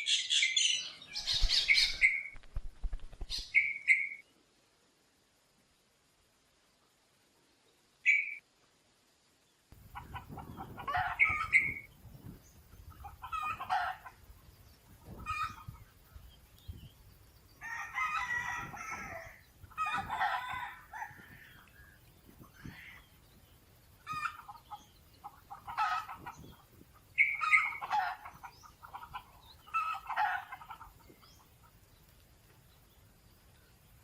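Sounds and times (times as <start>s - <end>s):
junglefowl crowing and clucking: 0.0s - 2.4s, 9.8s - 32.0s
short bird chirp: 3.2s - 4.2s, 8.1s - 8.4s.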